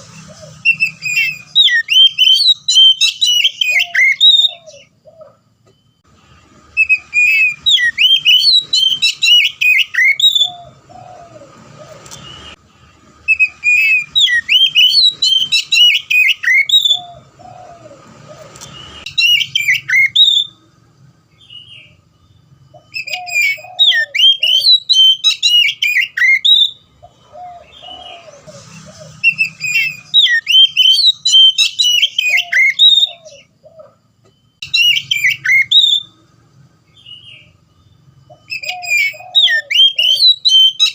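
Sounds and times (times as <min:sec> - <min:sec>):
bird singing whistled phrases: 0:00.5 - 0:04.9, 0:06.8 - 0:11.1, 0:13.3 - 0:17.3, 0:18.6 - 0:20.6, 0:22.7 - 0:26.9, 0:29.2 - 0:33.5, 0:34.4 - 0:36.2, 0:36.9 - 0:40.9.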